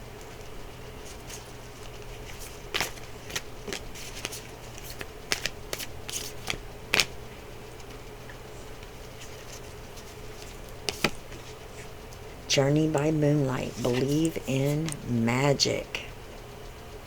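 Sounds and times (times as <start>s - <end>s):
faint steady hum: 0.0s - 17.0s
cards being shuffled: 1.0s - 7.2s, 8.8s - 11.9s, 13.6s - 15.1s.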